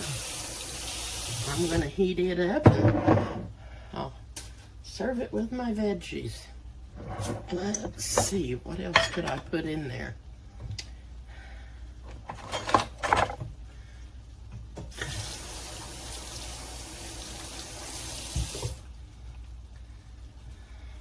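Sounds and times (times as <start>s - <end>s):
kitchen tap running: 0.0s - 2.0s, 14.8s - 19.0s
kitchenware knocks and clinks: 2.6s - 3.5s, 8.1s - 9.5s, 12.3s - 13.4s.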